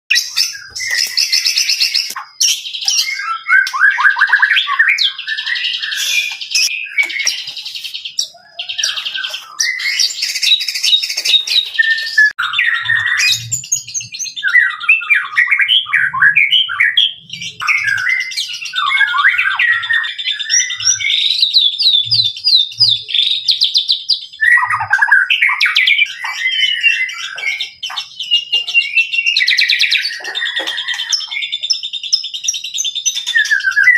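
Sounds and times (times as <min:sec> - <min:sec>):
songbird whistled and trilled song: 0:00.1 - 0:33.9.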